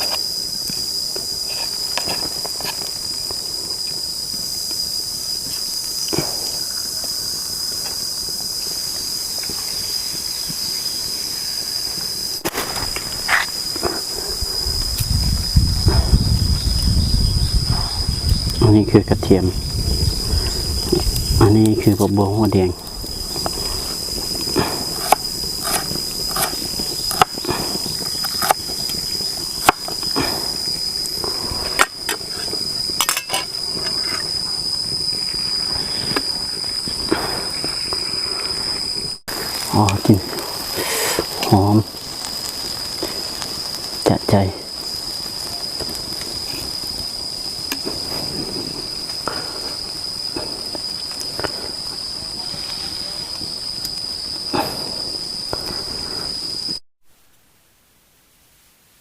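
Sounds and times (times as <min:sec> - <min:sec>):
insects droning: 0:00.0 - 0:59.0
low rumbling: 0:14.0 - 0:21.9.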